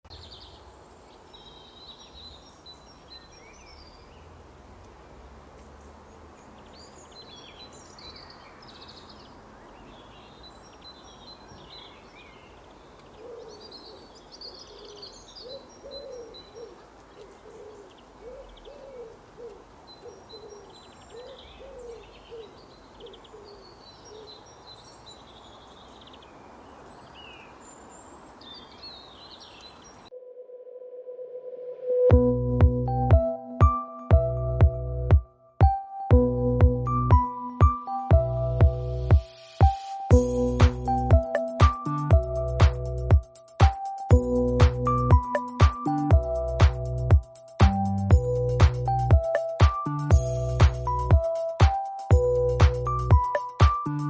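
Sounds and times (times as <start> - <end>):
birds chirping and trilling: 0.1 - 4.4, 5.6 - 32.1, 36.9 - 54.0
outdoor background hiss: 0.1 - 30.2, 37.2 - 54.0.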